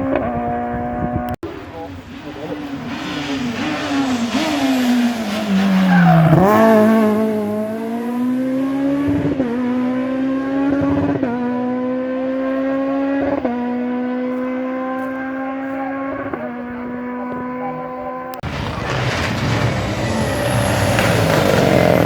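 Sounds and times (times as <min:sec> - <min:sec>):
rally car engine shifting gears: 0:00.0 - 0:22.0.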